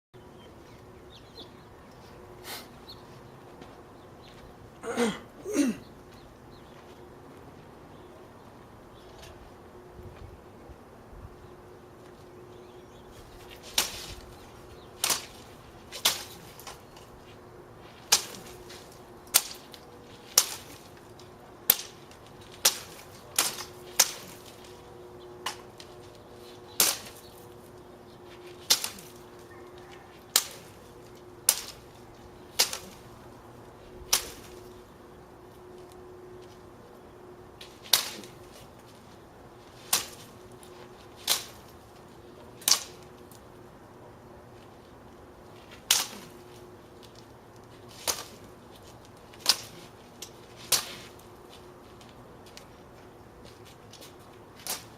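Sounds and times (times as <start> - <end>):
sword cutting branches: 13.5 - 14.3, 15.0 - 17.1, 17.9 - 24.8, 26.7 - 27.5, 28.4 - 29.4, 30.2 - 33.2, 34.0 - 34.8, 37.6 - 38.8, 39.6 - 41.9, 42.6 - 43.1, 45.6 - 47.2, 47.8 - 51.3, 54.0 - 54.9.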